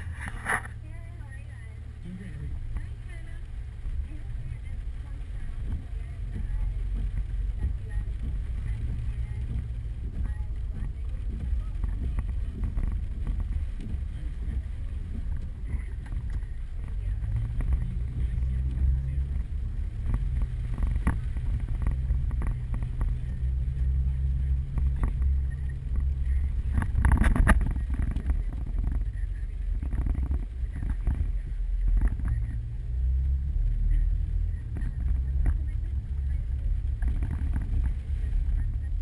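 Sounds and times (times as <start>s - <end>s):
vehicle driving rumble: 0.0s - 39.0s
hail knocking on car: 3.9s - 24.0s.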